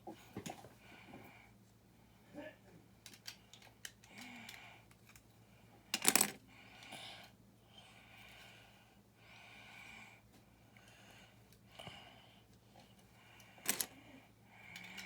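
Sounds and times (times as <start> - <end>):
plastic pieces clicking: 5.9 - 6.4, 13.6 - 13.9
soft breathing: 6.4 - 15.0
plastic bricks clattering: 13.6 - 13.9.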